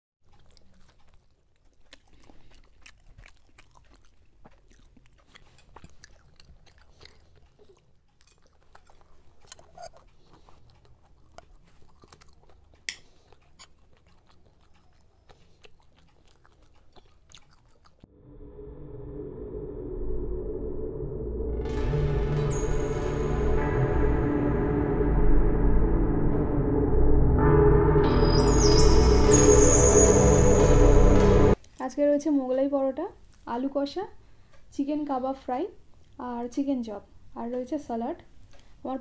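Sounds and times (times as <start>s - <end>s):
crisp crunchy chewing: 0.2s - 18.1s.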